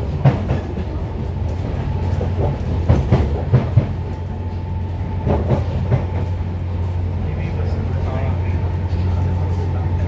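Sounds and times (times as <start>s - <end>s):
train rumble and hum: 0.0s - 10.0s.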